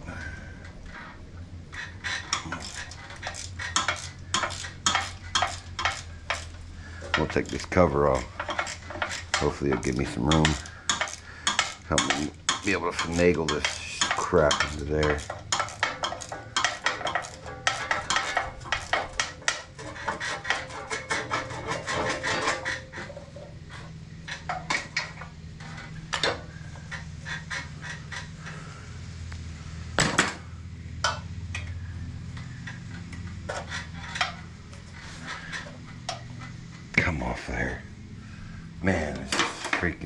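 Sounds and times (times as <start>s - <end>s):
metal parts clinking and clattering: 1.7s - 28.7s, 30.0s - 36.9s, 38.9s - 40.0s
sharp metal clank: 2.2s - 23.5s.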